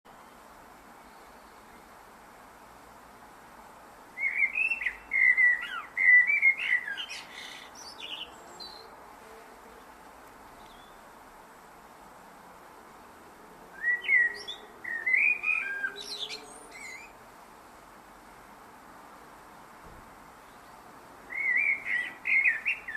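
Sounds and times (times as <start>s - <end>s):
blackbird singing: 4.2s - 8.9s, 13.8s - 17.2s, 20.4s - 22.9s.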